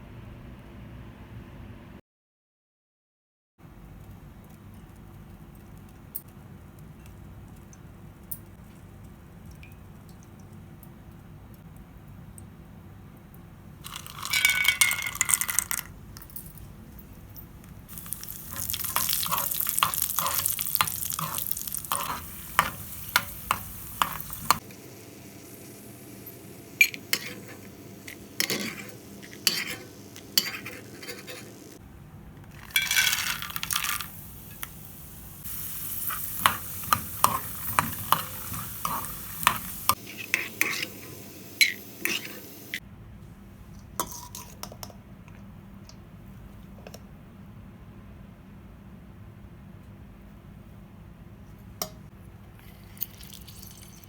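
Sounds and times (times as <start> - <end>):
hot oil sizzling in a pan: 17.9 - 31.8, 32.7 - 42.8
spatula scraping and tapping pan: 18.2 - 24.8, 26.8 - 31.8, 36.1 - 42.4.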